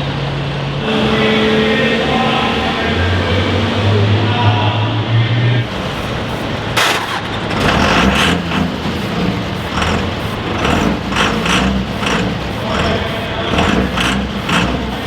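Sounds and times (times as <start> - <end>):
heavy engine running unevenly: 5.6 - 15.0.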